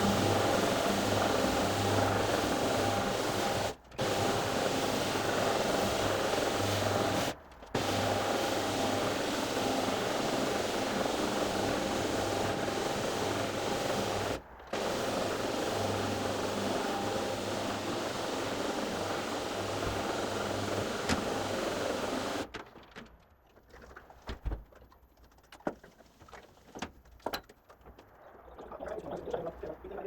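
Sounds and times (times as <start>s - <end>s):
carpet cleaning machine motor drone: 0.0s - 22.5s.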